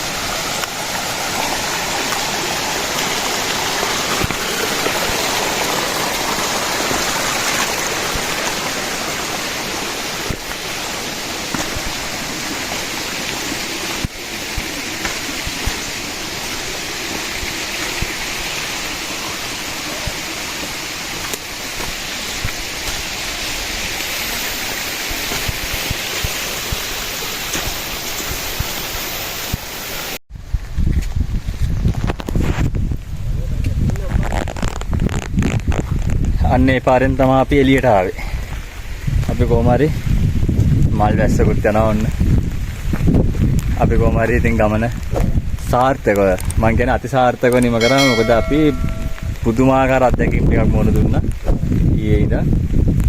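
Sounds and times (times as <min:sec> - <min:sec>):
running water rushing: 0:00.0 - 0:30.2, 0:41.2 - 0:52.3.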